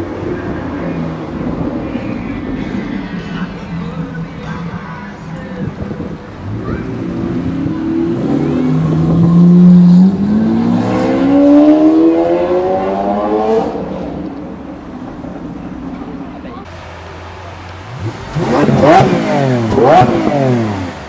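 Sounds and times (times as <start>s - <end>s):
performance car engine accelerating: 5.4s - 14.6s, 17.6s - 21.0s.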